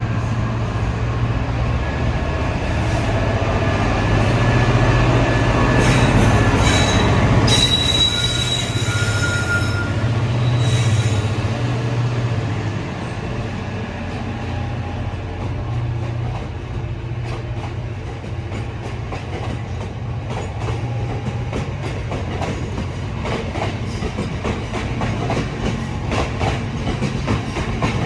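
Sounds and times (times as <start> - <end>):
high-pitched wheel squeal: 5.8 - 11.4.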